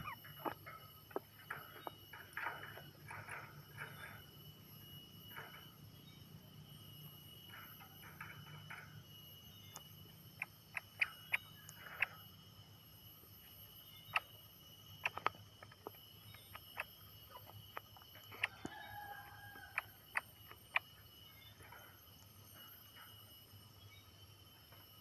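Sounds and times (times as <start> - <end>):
bird two-tone call: 0.0 - 2.0
faint high whine: 0.0 - 25.0
bird sharp ticks: 9.7 - 12.2, 15.0 - 18.9.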